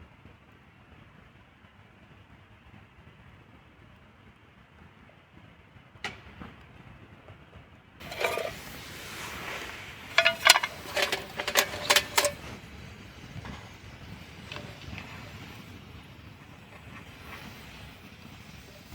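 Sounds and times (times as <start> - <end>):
metal cookware clinking and rattling: 8.0 - 12.7, 14.5 - 15.5.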